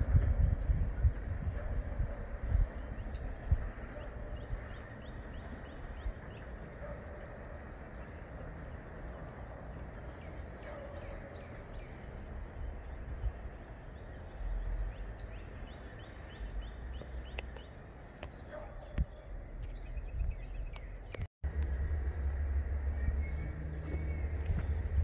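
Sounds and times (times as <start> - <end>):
birds calling: 0.0 - 25.0
steady outdoor hiss: 0.0 - 25.0
low rumbles: 18.8 - 25.0.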